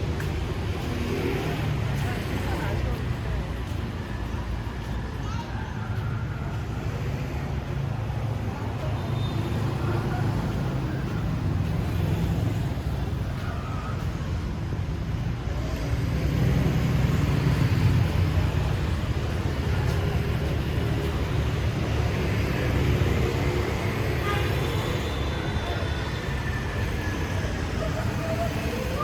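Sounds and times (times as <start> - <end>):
street traffic rumble: 0.0 - 29.0.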